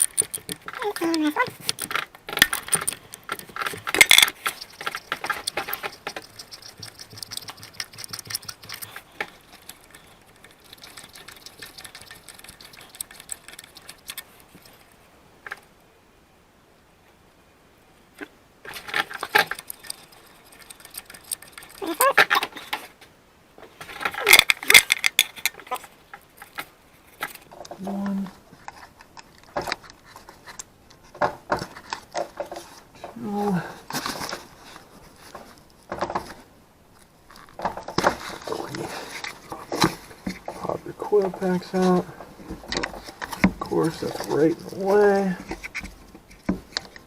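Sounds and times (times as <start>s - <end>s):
metal tools clinking and rattling: 23.8s - 26.6s.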